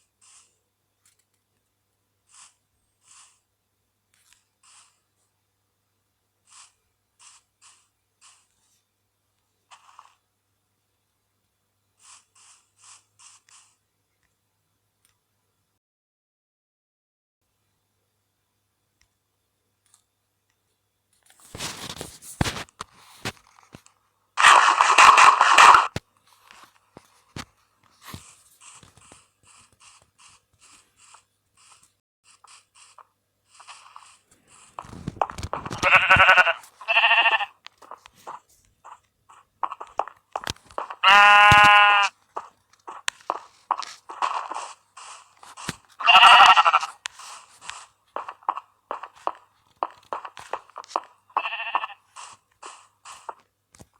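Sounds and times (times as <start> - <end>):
close-up crackling: 21.2 - 53.9
loud dense crunching: 24.4 - 26.0, 33.6 - 53.4
animal bleating: 35.5 - 37.6, 40.8 - 43.4, 44.1 - 49.4, 50.1 - 52.8.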